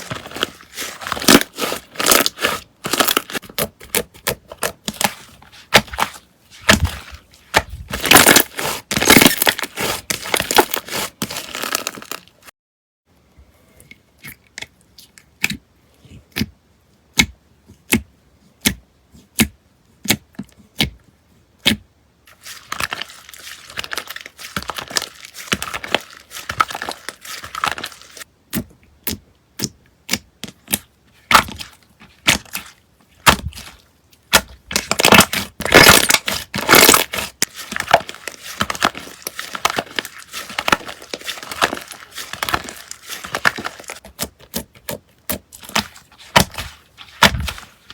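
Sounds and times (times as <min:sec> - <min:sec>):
slime crackling and crunching: 0:00.0 - 0:12.4, 0:22.3 - 0:28.3, 0:31.3 - 0:47.9.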